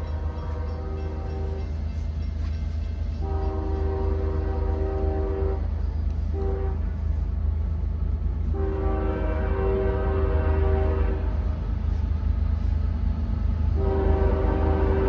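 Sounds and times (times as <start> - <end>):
locomotive air horn blasts: 0.0 - 2.0, 3.1 - 7.3, 8.4 - 12.0, 13.7 - 15.0
train rumbling: 0.0 - 15.0.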